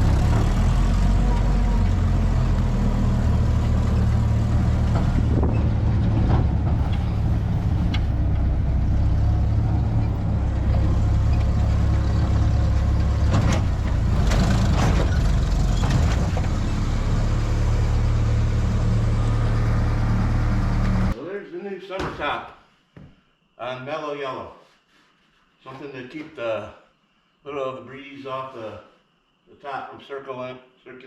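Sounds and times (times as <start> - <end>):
car engine running while driving: 0.0 - 21.2.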